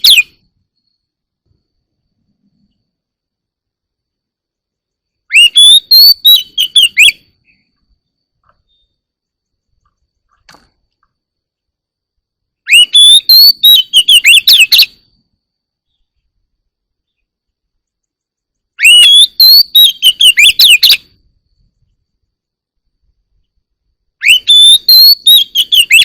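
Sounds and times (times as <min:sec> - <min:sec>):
bird singing whistled notes: 0:00.0 - 0:01.2, 0:04.8 - 0:10.4, 0:12.6 - 0:16.3, 0:17.0 - 0:22.1, 0:24.2 - 0:26.0.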